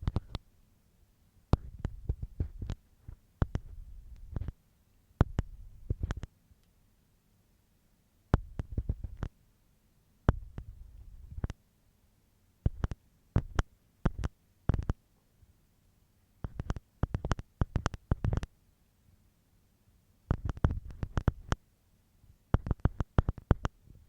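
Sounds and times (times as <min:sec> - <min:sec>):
ear pick scratching in ear: 0:01.6 - 0:04.6, 0:05.2 - 0:06.3, 0:08.4 - 0:09.3, 0:10.3 - 0:11.6, 0:12.7 - 0:15.0, 0:16.4 - 0:18.5, 0:20.3 - 0:21.6, 0:22.6 - 0:23.7.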